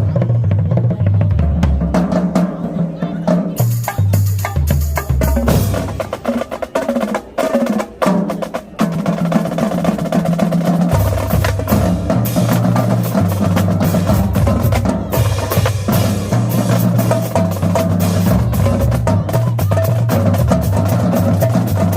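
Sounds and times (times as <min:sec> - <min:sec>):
marching drumline playing: 0:00.0 - 0:21.9
bass drum notes: 0:03.4 - 0:06.4, 0:09.9 - 0:21.9.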